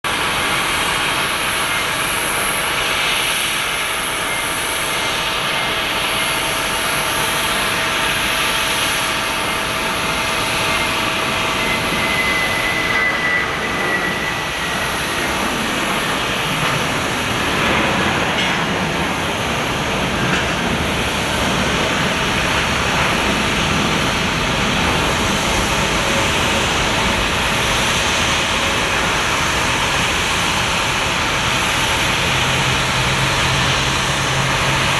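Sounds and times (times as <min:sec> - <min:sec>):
jet engines running: 0:00.1 - 0:34.9.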